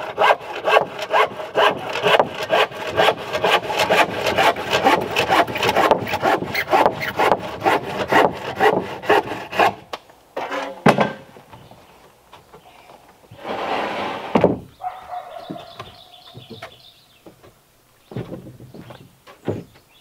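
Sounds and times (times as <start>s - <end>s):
hand saw cutting wood: 0.0s - 10.8s.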